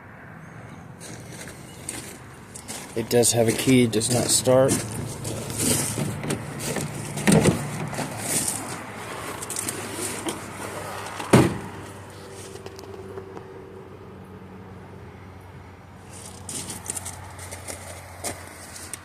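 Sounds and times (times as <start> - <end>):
truck door clicks and knocks: 5.8 - 8.2, 11.2 - 11.8
door thump: 11.3 - 11.7.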